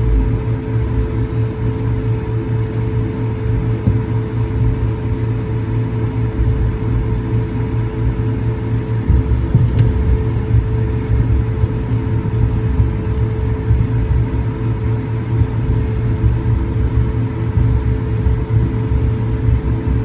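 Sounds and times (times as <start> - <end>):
aircraft cabin rumble: 0.0 - 20.0.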